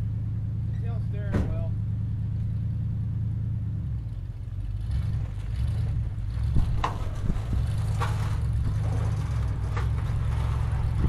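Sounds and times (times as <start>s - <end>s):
vehicle engine idling: 0.0s - 11.0s
clanks and knocks: 5.1s - 11.0s.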